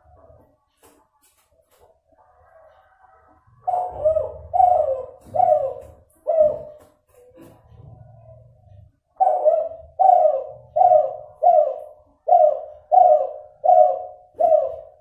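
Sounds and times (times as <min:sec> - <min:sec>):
dove cooing: 0:02.5 - 0:15.0.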